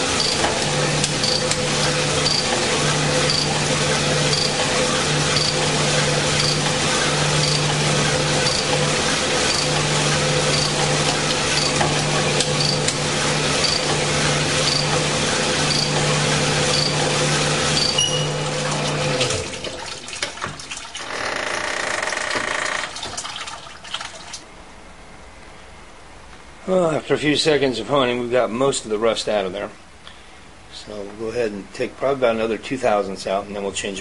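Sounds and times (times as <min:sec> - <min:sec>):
honing machine humming: 0:00.0 - 0:19.5.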